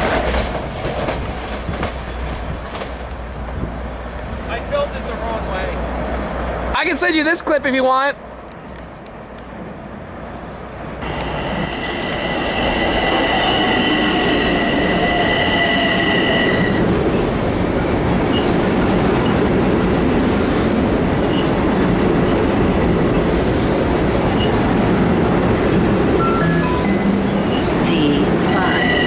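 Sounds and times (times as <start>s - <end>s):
train wheels rumbling on rail: 0.0s - 7.0s, 8.2s - 29.0s
high two-tone squeal: 11.0s - 17.0s, 26.2s - 29.0s.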